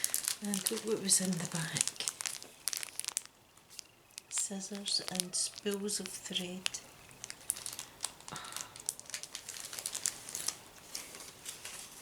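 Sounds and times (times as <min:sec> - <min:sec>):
paper and packaging crinkling: 0:00.0 - 0:12.0.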